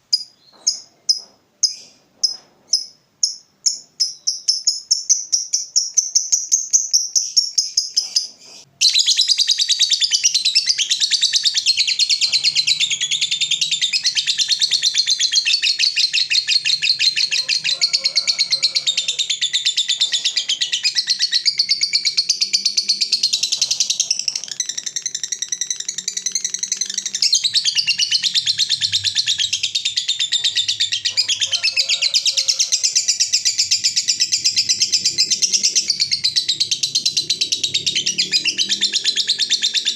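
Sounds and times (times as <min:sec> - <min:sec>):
lovebird chattering: 0:00.1 - 0:39.9
fast pulsing bird trill: 0:18.4 - 0:39.9.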